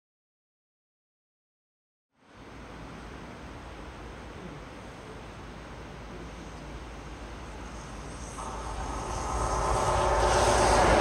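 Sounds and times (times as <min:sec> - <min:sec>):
distant train approaching: 0:02.4 - 0:11.0.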